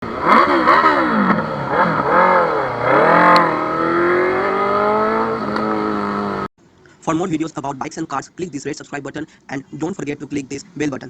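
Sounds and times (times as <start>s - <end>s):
motorcycle engine revving: 0.0s - 6.5s.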